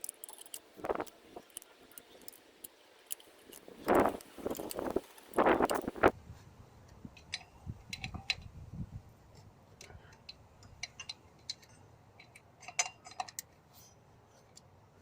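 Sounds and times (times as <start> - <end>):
metallic clicks of hand tools: 0.0 - 6.0, 9.8 - 13.5.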